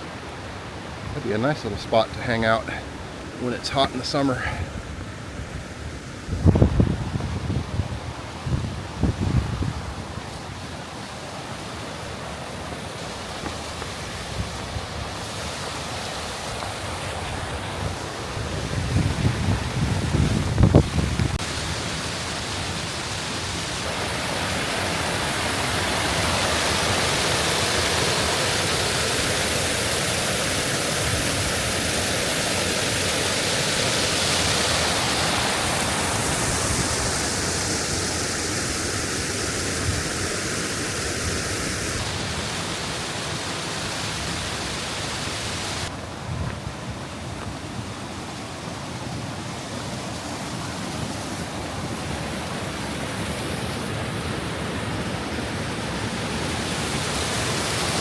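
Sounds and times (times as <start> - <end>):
creek water rushing over waterfalls: 0.0 - 58.0.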